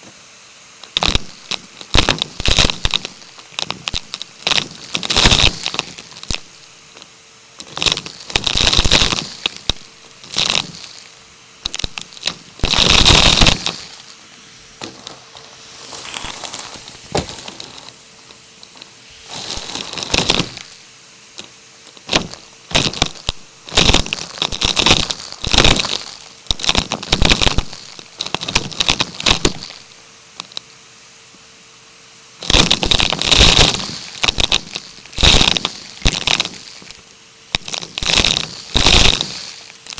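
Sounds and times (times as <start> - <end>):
plastic crinkling: 0.8 - 20.8, 21.4 - 30.6, 32.4 - 39.9.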